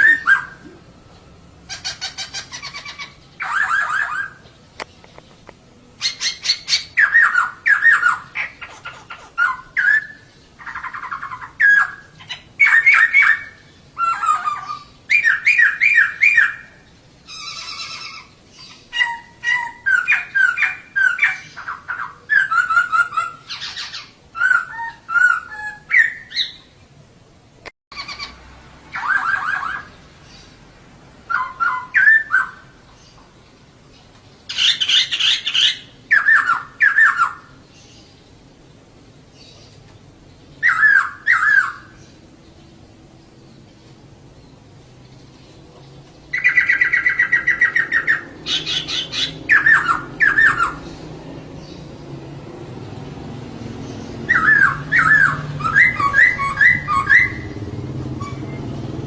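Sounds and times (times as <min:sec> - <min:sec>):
laughingthrush singing: 0:00.0 - 0:26.8, 0:44.1 - 0:59.0.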